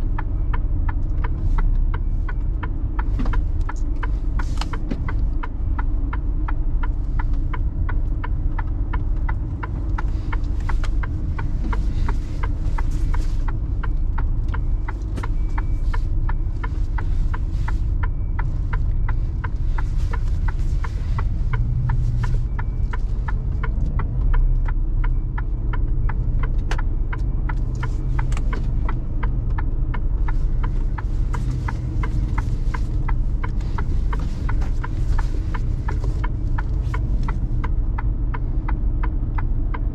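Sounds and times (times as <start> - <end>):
diesel truck engine rumble: 0.0 - 39.9
regular ticking: 0.0 - 39.9.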